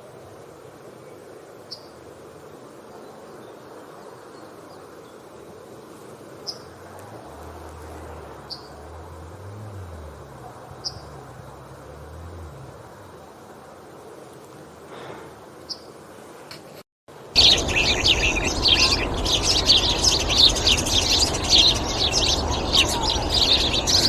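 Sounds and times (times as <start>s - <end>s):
outdoor background noise: 0.0s - 24.0s
low rumble: 17.4s - 24.0s
yellowhammer call notes: 17.4s - 24.0s.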